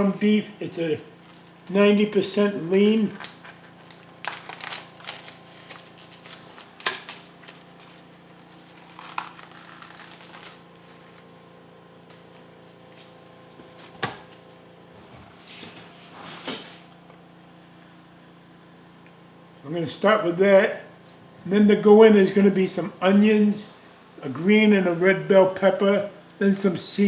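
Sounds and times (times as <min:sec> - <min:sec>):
steady low hum: 0:00.0 - 0:27.0
plastic wrapping crinkling: 0:03.1 - 0:11.3.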